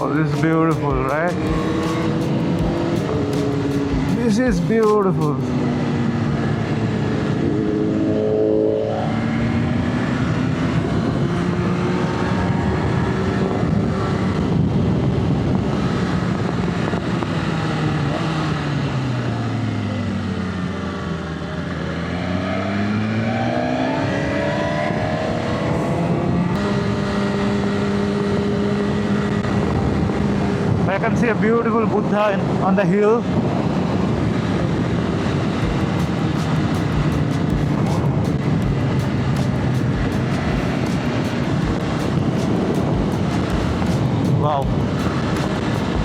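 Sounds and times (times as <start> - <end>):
motorcycle engine running: 0.0 - 6.0, 35.1 - 46.0
wind noise: 9.6 - 18.1, 28.2 - 46.0.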